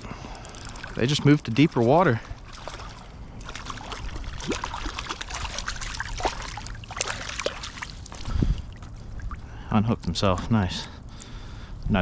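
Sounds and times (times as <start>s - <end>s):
water splashing and dripping: 0.0s - 10.3s
fish thrashing at surface: 2.4s - 8.9s.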